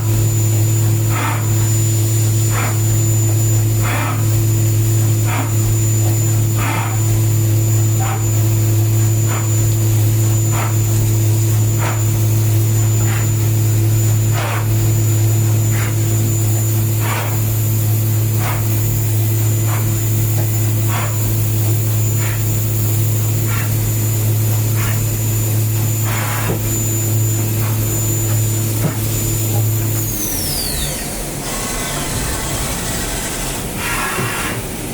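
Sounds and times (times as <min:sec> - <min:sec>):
milling machine hum: 0:00.0 - 0:34.9
high spindle whine: 0:21.6 - 0:34.9.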